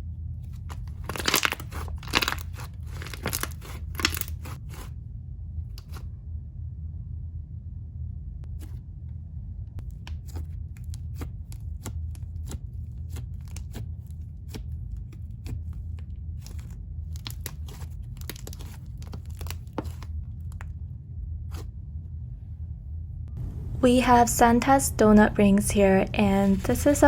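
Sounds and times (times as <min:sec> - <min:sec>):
steady low hum: 0:00.0 - 0:27.0
slime squishing with sticky pops: 0:00.7 - 0:04.6, 0:16.4 - 0:20.0.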